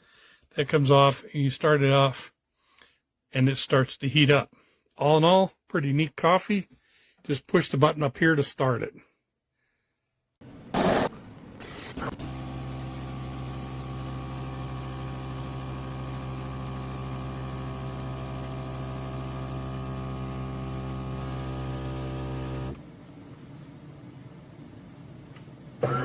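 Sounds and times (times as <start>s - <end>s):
espresso machine humming: 10.5s - 23.0s.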